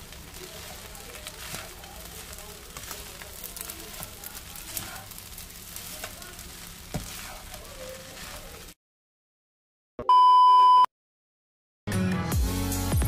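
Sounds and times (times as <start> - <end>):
food sizzling in hot pan: 0.0 - 8.8
stirring ticks and scrapes: 0.0 - 8.8.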